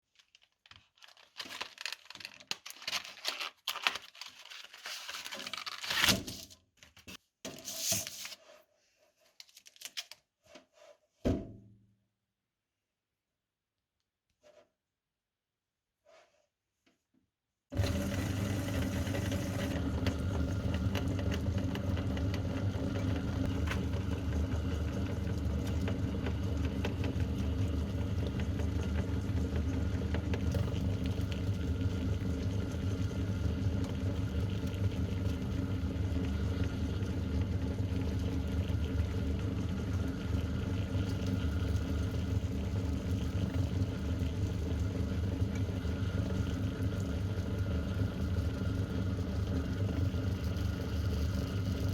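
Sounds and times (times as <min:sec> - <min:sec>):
meat grinder motor running: 0:17.7 - 0:51.9.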